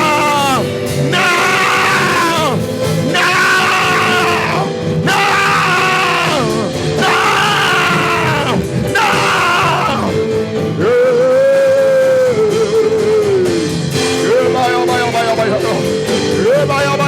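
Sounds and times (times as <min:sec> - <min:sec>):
voice crying out: 0:00.0 - 0:10.1
held keyboard chords: 0:00.0 - 0:17.0.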